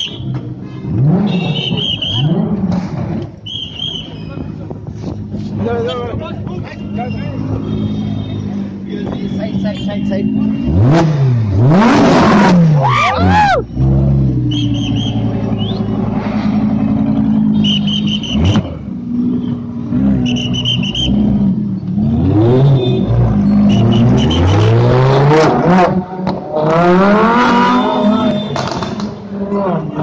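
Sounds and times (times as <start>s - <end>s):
car engines revving: 0.0s - 30.0s
shrill trilling whistle bursts: 1.4s - 2.3s, 3.4s - 4.4s, 14.5s - 15.8s, 17.6s - 18.7s, 20.2s - 21.2s, 22.8s - 24.7s.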